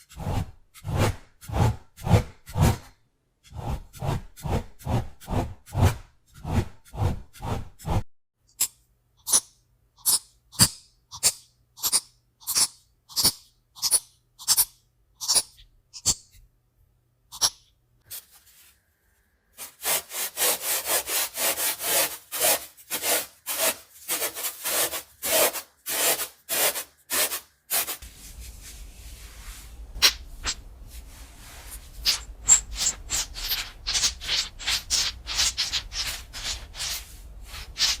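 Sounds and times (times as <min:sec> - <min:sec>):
short scraping strokes: 0:19.6 - 0:38.0
low steady hum: 0:28.0 - 0:34.2.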